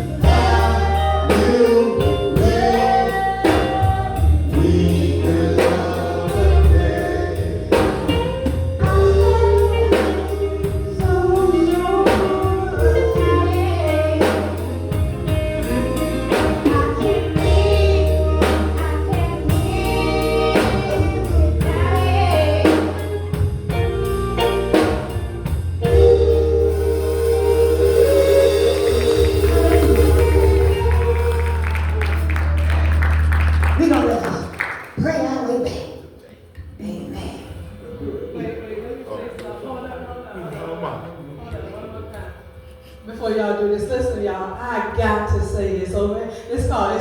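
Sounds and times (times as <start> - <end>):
voices singing together: 0.0 - 25.1, 25.8 - 32.0
drum kit: 0.0 - 34.4
keyboard: 0.0 - 35.8
bass: 0.0 - 38.8.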